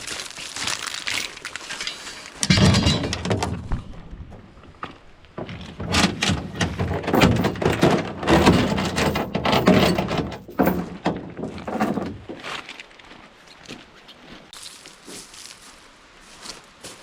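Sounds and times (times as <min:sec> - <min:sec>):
camp gear clattering and thunking: 0:00.9 - 0:12.8.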